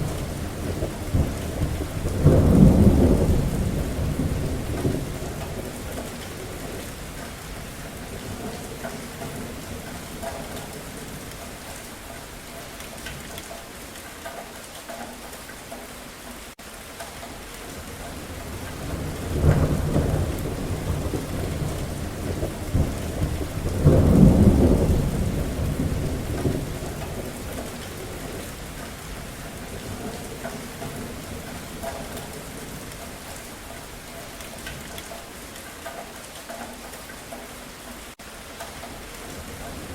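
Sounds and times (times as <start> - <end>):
rolling thunder: 0.0 - 11.3, 17.8 - 34.9
steady rain falling: 0.0 - 39.9.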